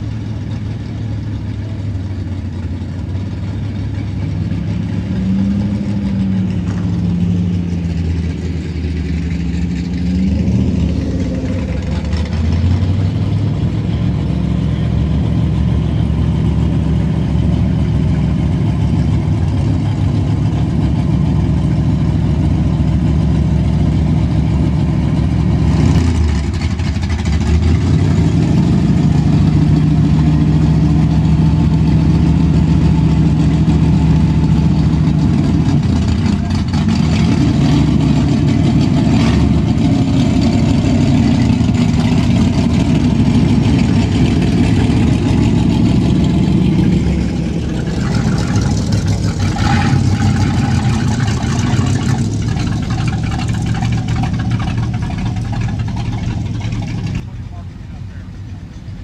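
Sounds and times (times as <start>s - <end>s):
car engine idling loudly: 0.0s - 59.0s.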